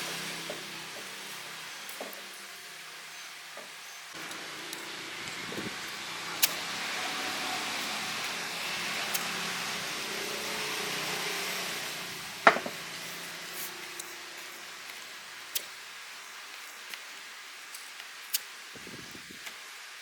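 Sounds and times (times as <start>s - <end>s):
fan motor whirring: 0.0s - 15.6s.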